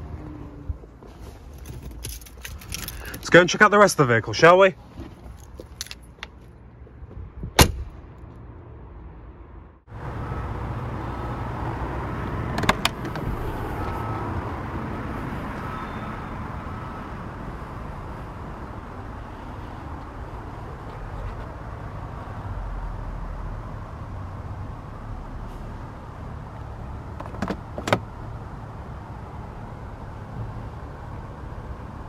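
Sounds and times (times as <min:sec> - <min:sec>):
traffic hum: 0:00.0 - 0:32.0
wind: 0:00.0 - 0:32.0
car door shutting: 0:07.4 - 0:07.9, 0:12.5 - 0:14.2, 0:27.2 - 0:28.1.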